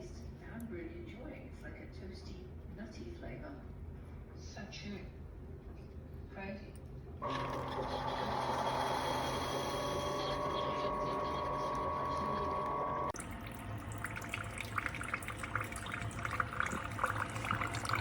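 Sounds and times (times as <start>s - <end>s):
liquid running: 7.2s - 18.0s
low hum: 7.2s - 18.0s
steady hum with held tone: 7.2s - 18.0s.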